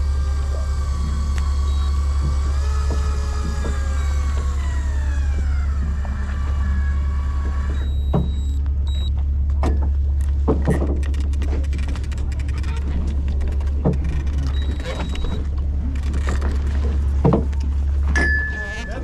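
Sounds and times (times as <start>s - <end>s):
electric fishing reel whining: 0.0s - 8.6s, 11.1s - 17.2s
boat engine drone: 0.0s - 19.0s
clicks and knocks: 7.7s - 18.6s.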